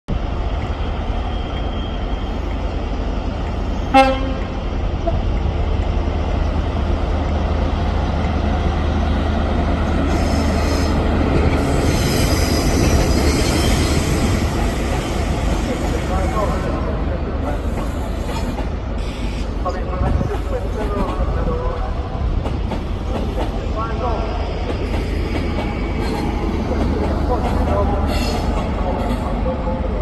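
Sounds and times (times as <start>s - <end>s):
diesel train low rumble: 0.1s - 30.0s
train horn toot: 3.9s - 4.5s.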